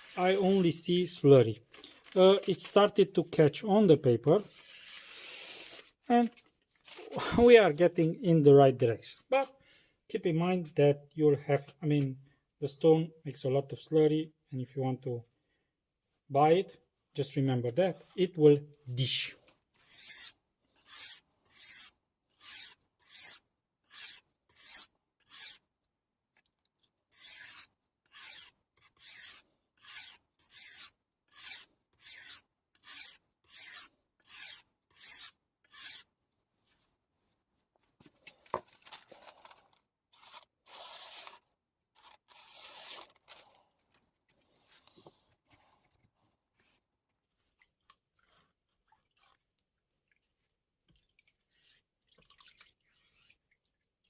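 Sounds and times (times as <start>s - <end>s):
knife scraping on whetstone: 19.8s - 25.6s, 27.1s - 36.1s.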